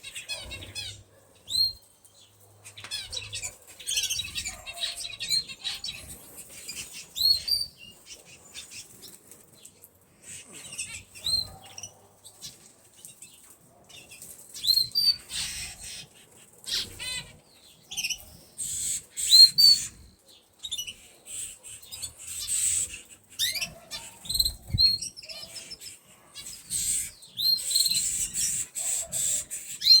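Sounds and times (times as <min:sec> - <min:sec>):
canary trill: 0:00.0 - 0:01.9, 0:02.8 - 0:07.7
canaries chirping: 0:00.0 - 0:30.0.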